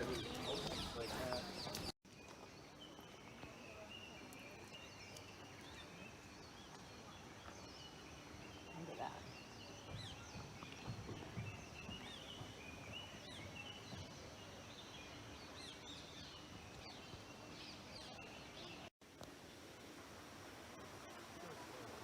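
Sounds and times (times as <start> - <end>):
birds chirping and whistling: 0.0 - 1.9
faint hiss: 10.8 - 22.0.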